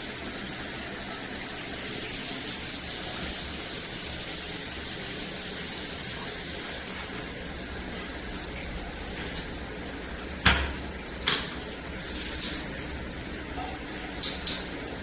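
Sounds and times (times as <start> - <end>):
shower head spraying water: 1.6 - 15.0.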